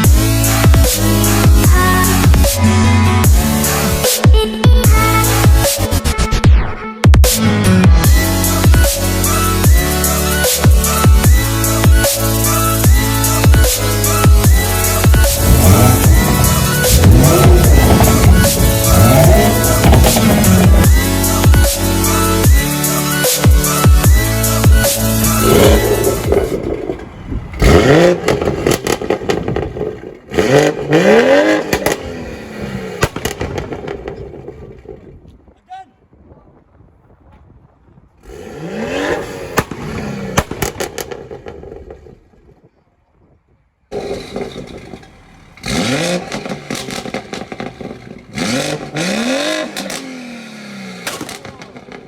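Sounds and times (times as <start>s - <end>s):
car engine revving: 11.4s - 34.9s, 38.3s - 42.3s, 43.9s - 52.0s
exhaust pops and crackles: 14.4s - 21.6s, 23.7s - 32.2s, 33.0s - 35.5s, 39.5s - 42.8s, 43.9s - 50.2s, 51.0s - 52.0s.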